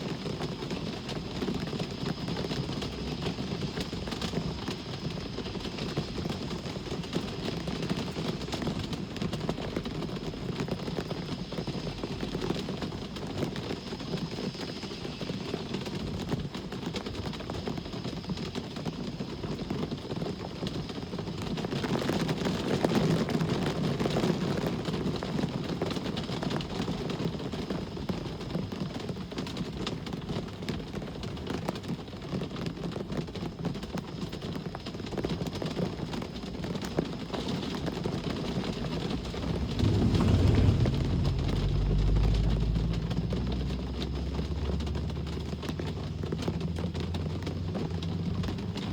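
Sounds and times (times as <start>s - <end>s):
rain pattering: 0.0s - 48.9s
road traffic rumble: 37.3s - 48.9s
vehicle passing: 38.5s - 48.9s.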